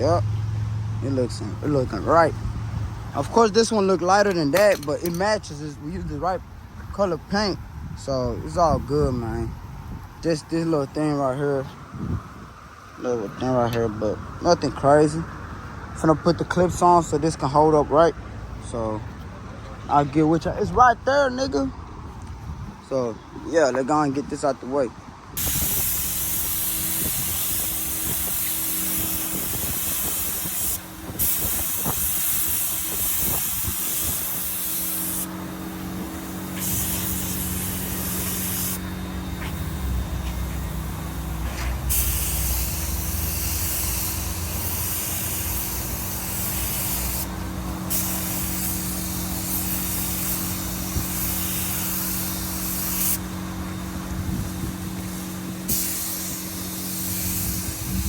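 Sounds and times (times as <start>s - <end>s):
paint spray gun hissing: 25.4s - 58.0s.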